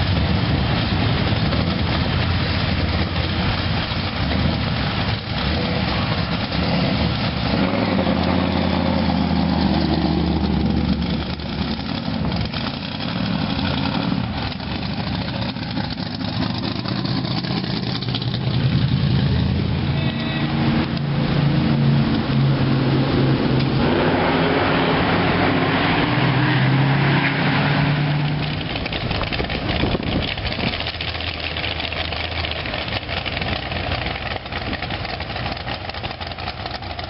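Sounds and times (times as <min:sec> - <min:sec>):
car engines revving: 0:00.0 - 0:37.0.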